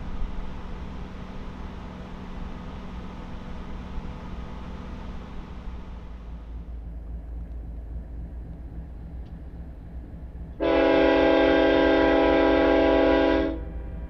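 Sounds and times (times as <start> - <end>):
low steady rumble: 0.0 - 14.0
locomotive air horn blast: 10.6 - 14.0.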